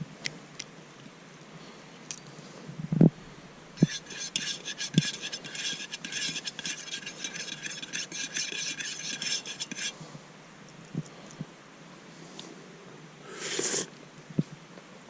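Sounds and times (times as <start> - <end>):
rapid scratchy rasping: 3.8 - 10.0.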